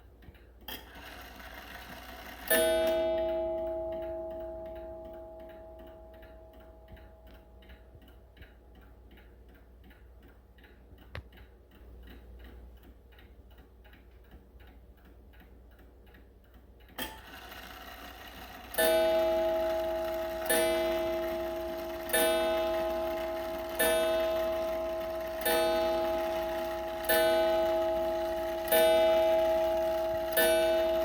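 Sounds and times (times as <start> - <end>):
clock ticking: 0.0 - 31.0
clock hour strike ringing: 1.0 - 8.0, 17.2 - 31.0.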